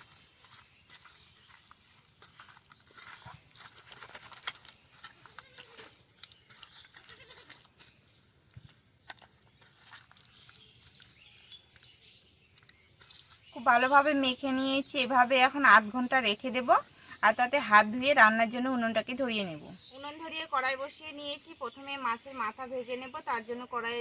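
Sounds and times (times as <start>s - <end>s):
hands mixing wet food: 0.0s - 15.4s
faint animal bleat: 5.2s - 5.9s, 7.0s - 7.7s.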